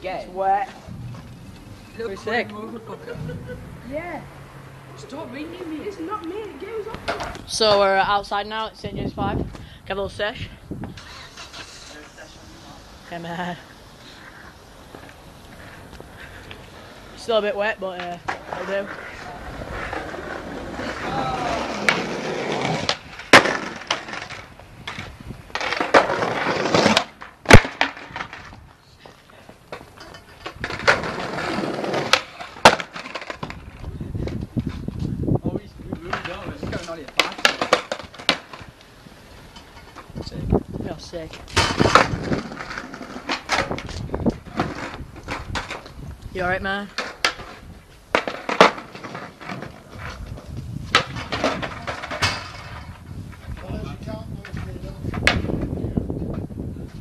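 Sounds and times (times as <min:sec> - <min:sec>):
skateboard wheels rolling: 0:00.0 - 0:57.0
skateboard clacking down: 0:05.6 - 0:07.6, 0:17.4 - 0:28.6, 0:29.6 - 0:34.8, 0:36.0 - 0:38.8, 0:41.4 - 0:46.0, 0:46.9 - 0:50.2, 0:50.9 - 0:52.9.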